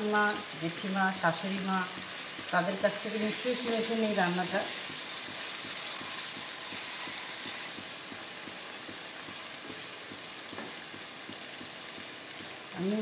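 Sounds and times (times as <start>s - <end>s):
vegetables sizzling in oil: 0.0s - 13.0s
wooden spatula tapping and scraping: 0.0s - 13.0s.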